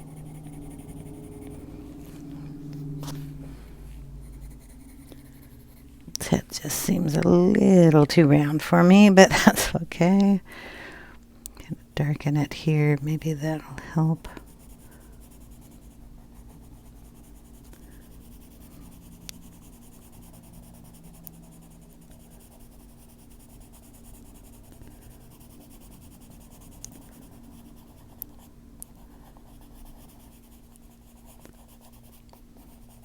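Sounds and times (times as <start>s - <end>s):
pencil scratching on paper: 0.0s - 7.4s, 14.3s - 33.0s
low steady hum: 0.0s - 33.0s
pencil ticks: 25.8s - 27.2s.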